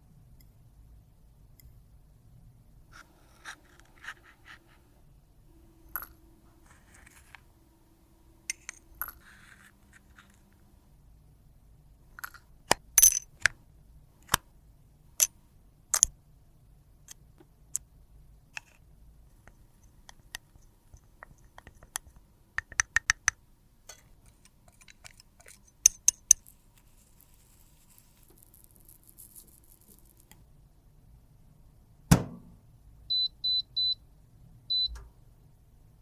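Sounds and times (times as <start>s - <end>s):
clicks of small hard objects: 19.5s - 30.4s.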